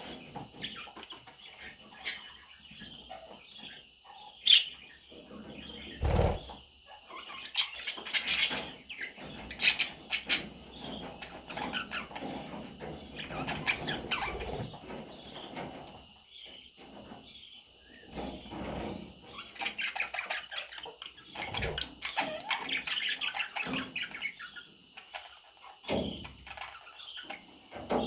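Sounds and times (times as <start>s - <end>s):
chicks chirping and squeaking: 0.0s - 28.0s
rustling and wing fluttering: 6.0s - 6.6s.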